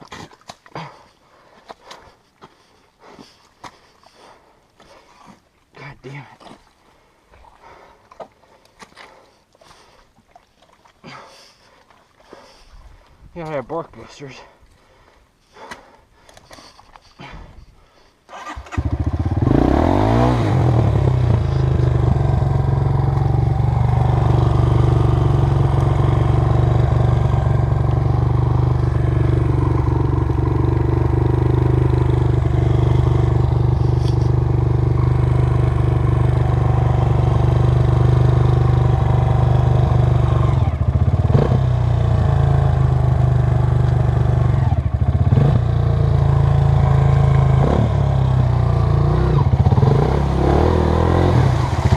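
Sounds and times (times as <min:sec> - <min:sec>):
dirt bike engine revving: 0:18.3 - 0:51.9.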